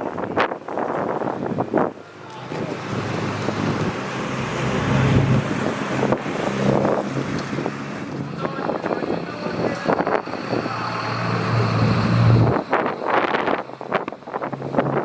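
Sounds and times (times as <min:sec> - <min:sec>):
wind buffeting microphone: 0:00.0 - 0:15.0
car driving past: 0:02.2 - 0:08.4.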